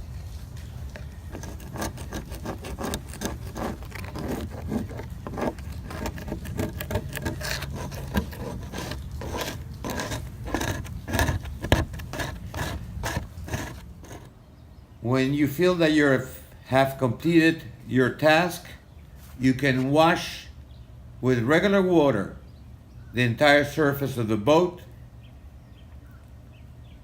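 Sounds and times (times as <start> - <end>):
scrubbing and scraping on plastic hull: 0.0 - 14.3.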